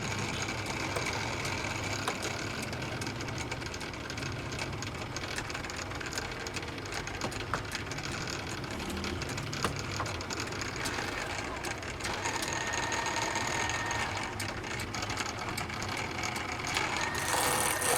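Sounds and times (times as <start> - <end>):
motor machine humming: 4.5 - 17.9.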